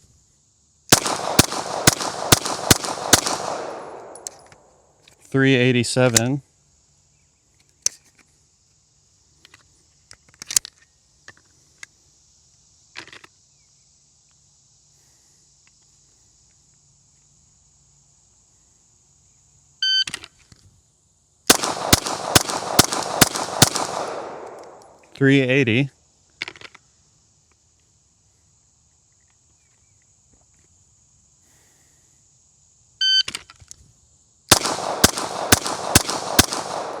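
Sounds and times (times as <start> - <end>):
gunshots: 0.9 - 4.4, 21.5 - 25.0, 34.5 - 37.0
rapid pistol shots: 0.9 - 4.4, 21.5 - 25.0, 34.5 - 37.0.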